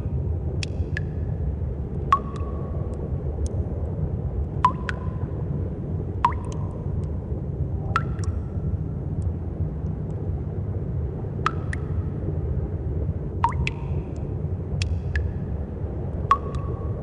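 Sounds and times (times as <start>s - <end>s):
steady low rumble: 0.0s - 17.0s
water drops plinking into pool: 0.6s - 1.3s, 2.0s - 3.6s, 4.6s - 5.4s, 6.2s - 7.2s, 7.9s - 8.6s, 11.4s - 12.1s, 13.4s - 15.4s, 16.2s - 17.0s.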